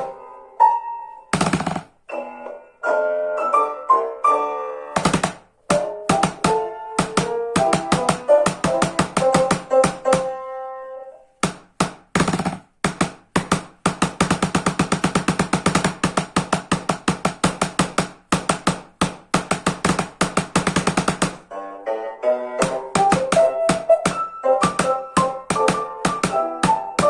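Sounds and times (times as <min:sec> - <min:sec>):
fast wooden strikes: 0:01.3 - 0:02.1, 0:05.0 - 0:10.4, 0:11.4 - 0:21.5, 0:22.6 - 0:27.0.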